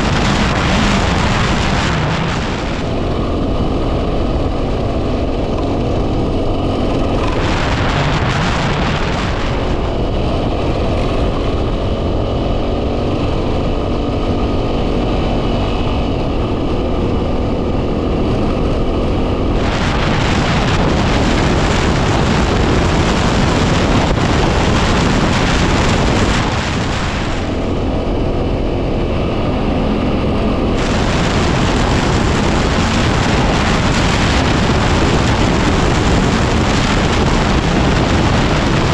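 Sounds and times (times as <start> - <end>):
motorcycle engine running: 0.0 - 38.9
wind buffeting microphone: 0.0 - 38.9.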